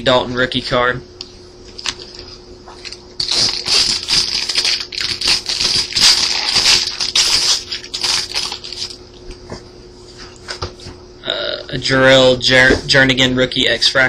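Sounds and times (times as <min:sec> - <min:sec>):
foil wrapper crinkling and tearing: 0:01.8 - 0:09.0.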